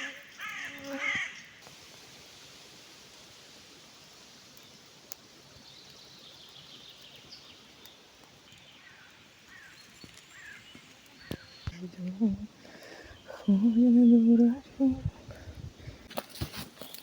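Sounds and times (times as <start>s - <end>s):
crow cawing: 0.0s - 1.5s, 10.3s - 10.6s
rustling background: 0.0s - 17.0s
faint bird chirps: 5.6s - 15.1s.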